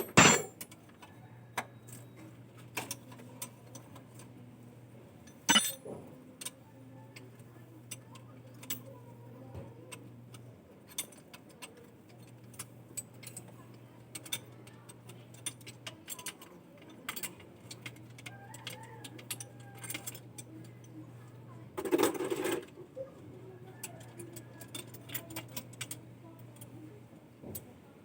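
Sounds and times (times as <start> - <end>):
low steady hum: 0.0 - 0.7, 4.5 - 5.8
light metallic clicks and clinks: 0.0 - 2.2, 5.2 - 6.6.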